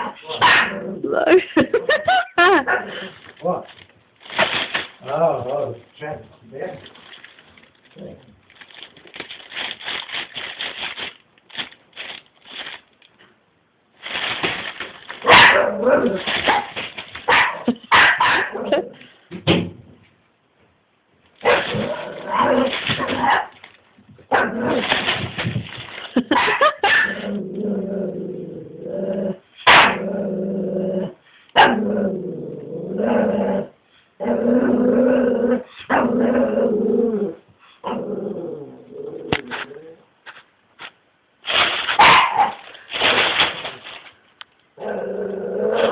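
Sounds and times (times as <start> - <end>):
puppy growling barking and whining: 0.0 - 1.2, 15.2 - 19.1, 21.4 - 23.6, 24.3 - 24.9, 26.4 - 40.1, 44.8 - 45.9
trash bin scraping: 21.4 - 23.8.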